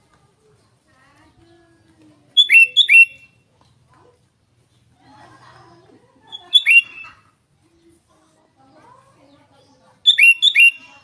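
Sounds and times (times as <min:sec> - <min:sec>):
bulbul calling: 0:02.4 - 0:03.4, 0:06.3 - 0:07.2, 0:10.0 - 0:11.0.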